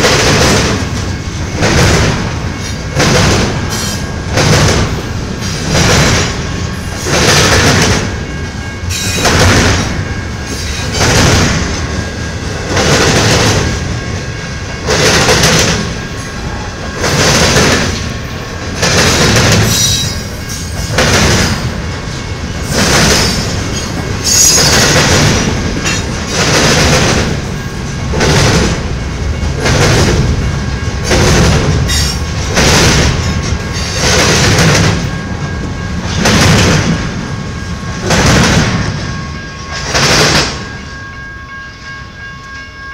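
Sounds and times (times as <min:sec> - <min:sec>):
freight train wheels clattering: 0:00.0 - 0:42.8
high wheel squeals: 0:23.2 - 0:25.0.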